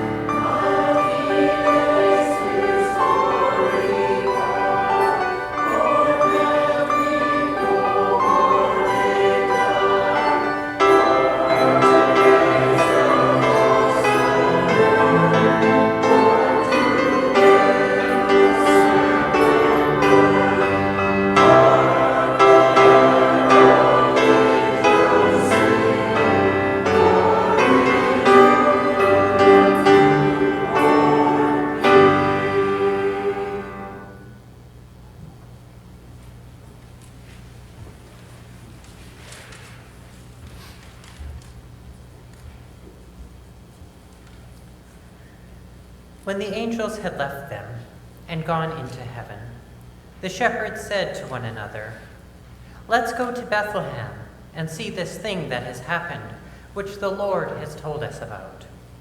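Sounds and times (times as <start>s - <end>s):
instrumental accompaniment: 0.0s - 34.4s
choir singing: 0.0s - 34.5s.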